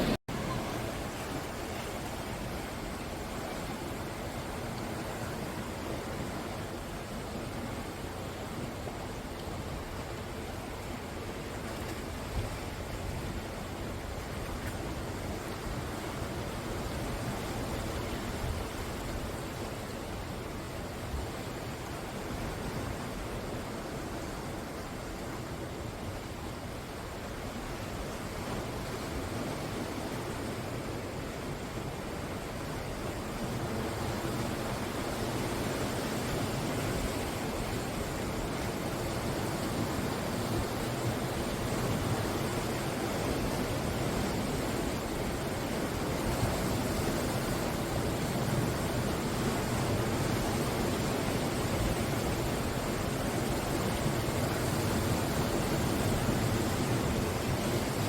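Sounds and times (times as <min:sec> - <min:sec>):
sea surf breaking: 0:00.0 - 0:08.8.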